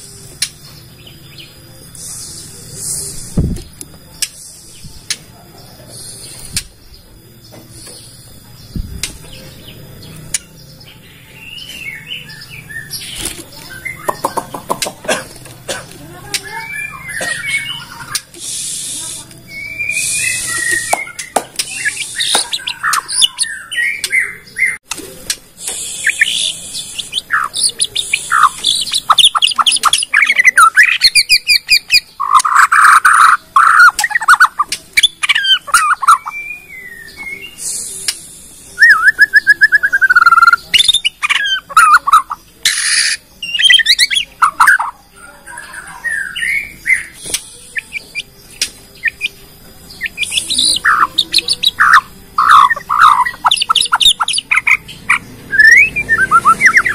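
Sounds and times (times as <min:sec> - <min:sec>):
sharp ticking bird notes: 0:00.0 - 0:05.3, 0:05.9 - 0:56.9
bird singing whistles and trills: 0:10.4 - 0:14.4, 0:16.4 - 0:24.8, 0:25.6 - 0:56.9.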